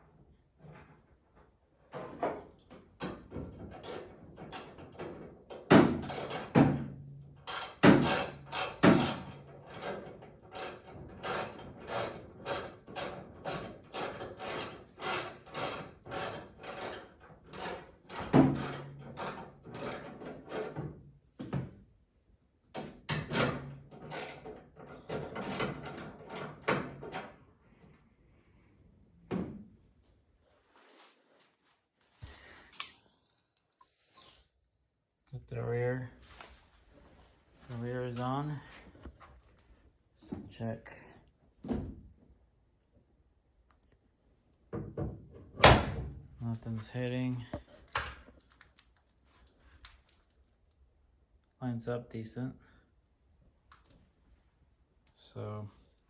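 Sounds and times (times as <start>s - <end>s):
knocks and clunks of parts: 0.5s - 21.8s, 22.7s - 27.4s, 44.7s - 46.3s.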